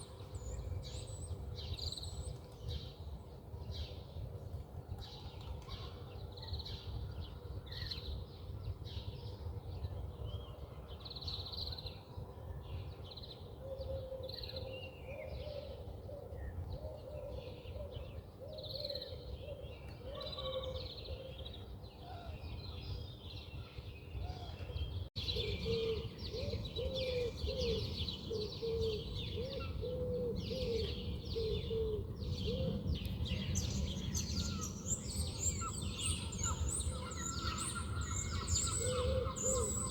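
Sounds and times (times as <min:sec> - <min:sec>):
birds chirping and twittering: 0:16.4 - 0:39.9.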